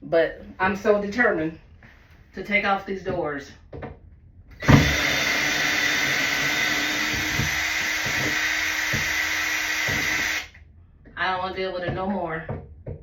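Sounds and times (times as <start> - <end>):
knock: 4.6 - 9.2, 9.8 - 10.2, 11.9 - 13.0
power drill running: 4.6 - 10.5.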